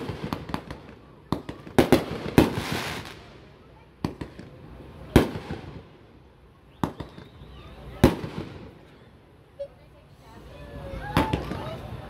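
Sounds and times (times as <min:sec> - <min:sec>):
firework bangs: 0:00.0 - 0:08.9
firework crackling: 0:00.0 - 0:12.0.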